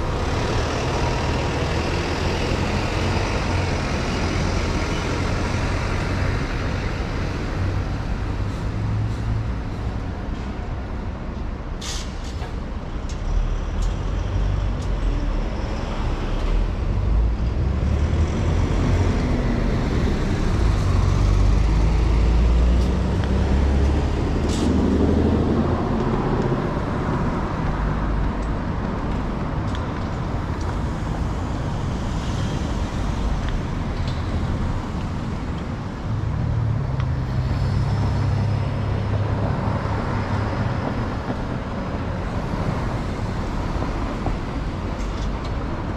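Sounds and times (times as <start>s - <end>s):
heavy low traffic rumble: 0.0s - 45.9s
passing vehicles rushing: 0.0s - 45.9s.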